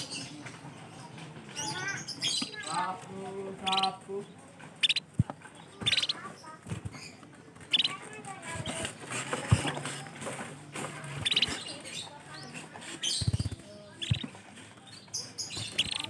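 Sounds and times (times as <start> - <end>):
canaries chirping: 0.0 - 16.0
high bird trills: 3.5 - 4.1, 4.8 - 10.0, 11.0 - 16.0.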